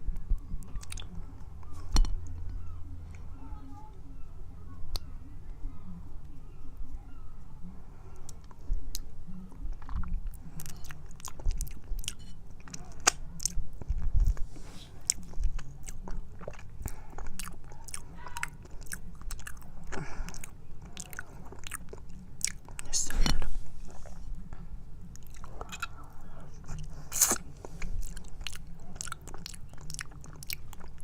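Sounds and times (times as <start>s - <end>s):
chewing honeycomb: 0.1s - 3.3s, 8.1s - 31.0s
sticky mouth sounds: 25.2s - 31.0s.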